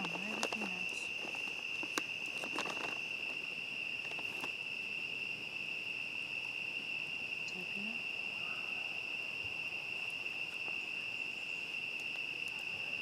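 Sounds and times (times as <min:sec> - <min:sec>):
sharp clicks and crackles: 0:00.0 - 0:03.4
crickets chirping: 0:00.0 - 0:13.0.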